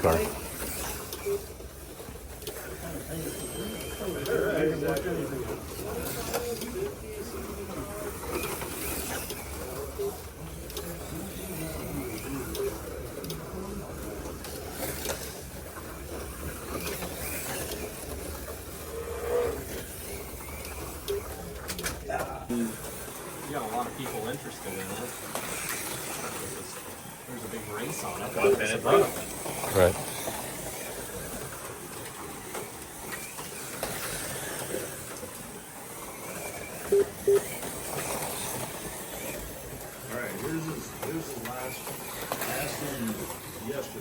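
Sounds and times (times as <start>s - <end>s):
slot cars whirring and rattling: 0.0s - 44.0s
short electronic beeps: 36.9s - 37.5s.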